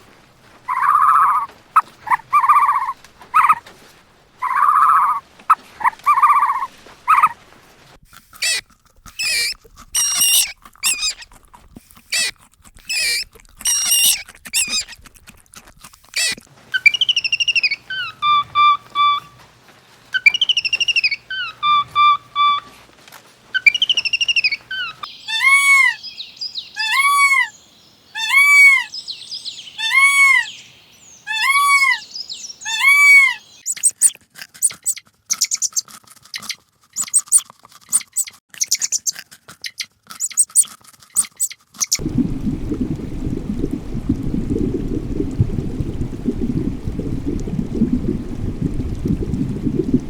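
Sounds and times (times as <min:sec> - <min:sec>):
parrot calls: 0:00.7 - 0:03.6, 0:04.4 - 0:05.2, 0:05.8 - 0:07.4, 0:08.4 - 0:08.6, 0:09.2 - 0:11.2, 0:12.1 - 0:12.3, 0:12.9 - 0:15.0, 0:16.2 - 0:19.4, 0:20.1 - 0:22.8, 0:23.5 - 0:35.8
low rushing noise: 0:42.0 - 0:50.0.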